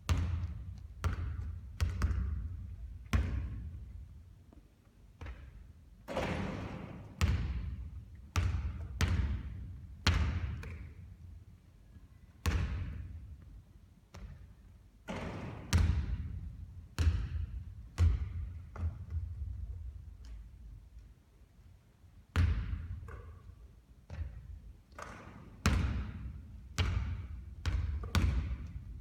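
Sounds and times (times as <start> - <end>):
basketball bouncing on court: 0.0 - 4.0, 5.2 - 11.2, 12.4 - 13.4, 14.1 - 20.5, 22.3 - 29.0.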